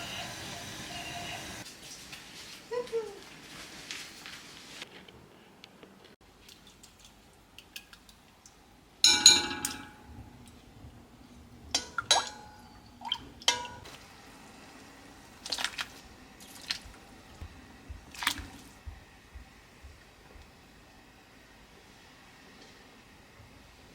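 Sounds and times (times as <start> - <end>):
kitchenware clinking and clanking: 9.1 - 10.1, 11.7 - 13.9.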